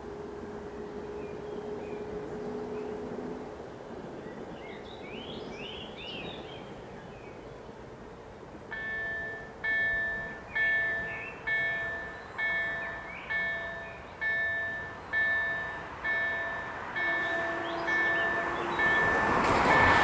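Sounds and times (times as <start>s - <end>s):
level crossing warning bell: 8.7s - 20.0s.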